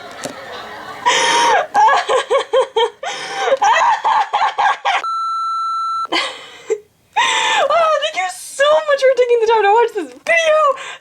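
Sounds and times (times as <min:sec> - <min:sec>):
steady electronic beep: 0:05.0 - 0:06.1.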